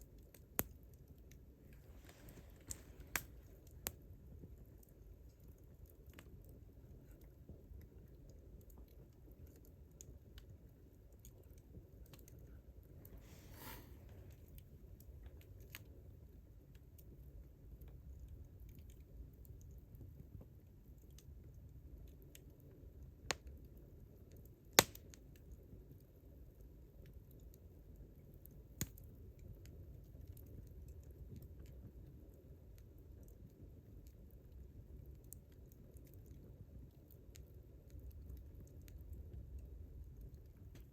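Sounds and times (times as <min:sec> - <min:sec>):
campfire crackling: 0:00.0 - 0:40.9
sharp fire pop: 0:13.2 - 0:14.0.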